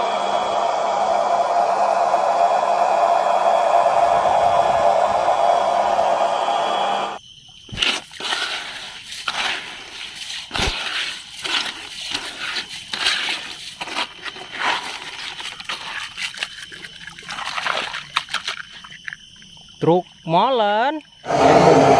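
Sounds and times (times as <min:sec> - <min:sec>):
wet scrubbing scrapes: 0:07.7 - 0:19.2.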